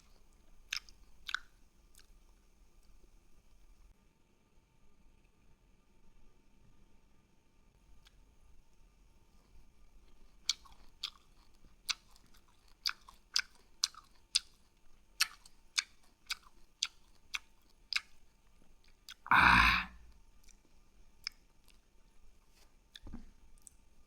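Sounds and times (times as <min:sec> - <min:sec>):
person chewing with wet mouth clicks: 0:00.0 - 0:02.2, 0:09.5 - 0:19.2, 0:20.4 - 0:21.8.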